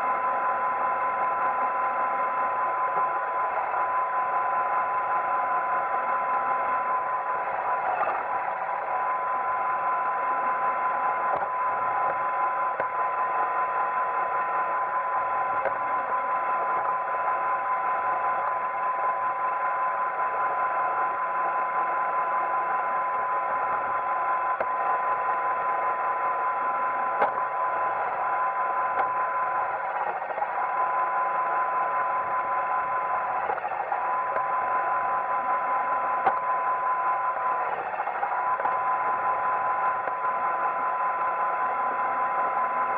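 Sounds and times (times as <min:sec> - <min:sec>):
robot vacuum whirring: 0:26.4 - 0:42.9.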